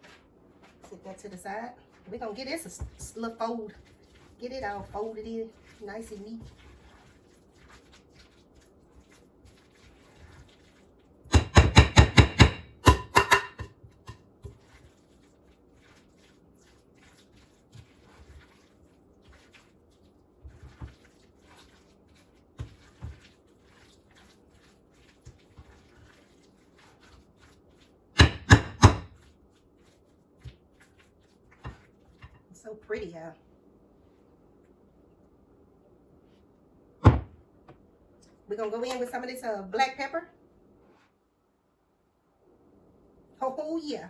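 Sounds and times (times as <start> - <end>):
utensil scraping in bowl: 0.0 - 33.2
knocks against bowl: 11.3 - 14.2.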